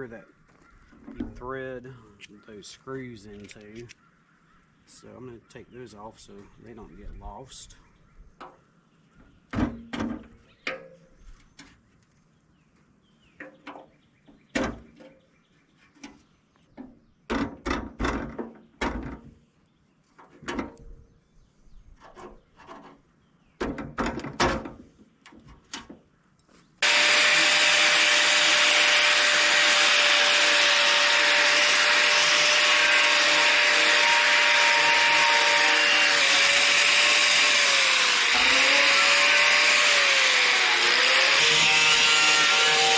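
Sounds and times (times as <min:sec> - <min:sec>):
power wire wheel scrubbing metal: 0:26.8 - 0:42.9.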